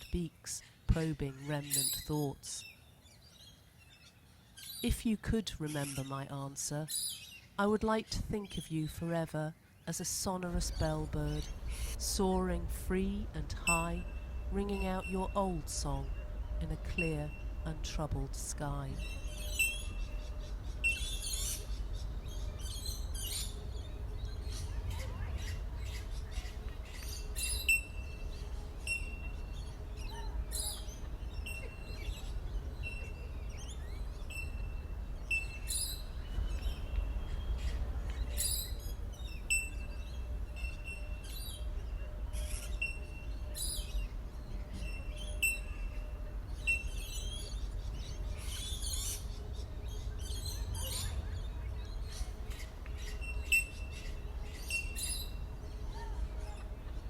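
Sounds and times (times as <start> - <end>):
low outdoor rumble: 9.9 - 57.0
bell-like bird calls: 18.8 - 21.6, 27.4 - 32.2, 39.5 - 47.6
high bird chirps: 18.9 - 56.6.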